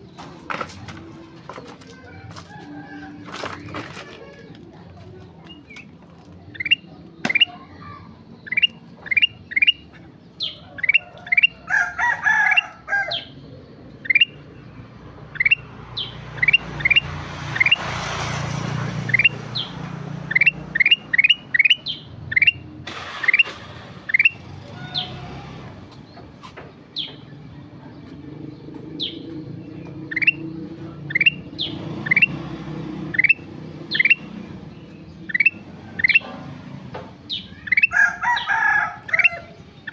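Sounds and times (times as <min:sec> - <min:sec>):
bird singing whistled notes: 0:06.5 - 0:07.6, 0:08.4 - 0:11.6, 0:14.0 - 0:14.4, 0:15.4 - 0:17.8, 0:19.1 - 0:19.7, 0:20.3 - 0:22.7, 0:30.1 - 0:32.4, 0:33.1 - 0:34.3, 0:35.3 - 0:36.2.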